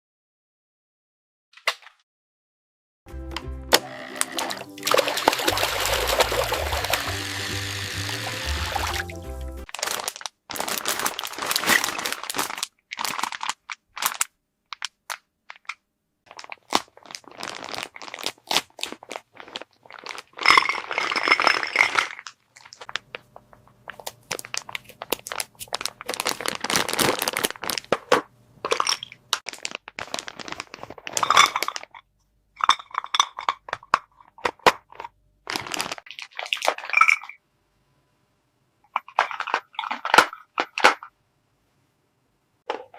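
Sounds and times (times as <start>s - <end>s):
plastic packaging crinkling: 5.3s - 32.0s, 34.9s - 36.7s.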